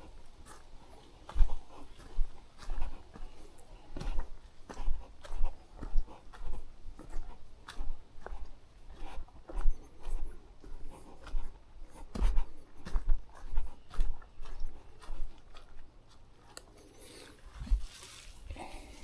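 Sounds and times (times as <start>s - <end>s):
footsteps on a trail: 0.0s - 19.0s
rustling: 16.5s - 19.0s.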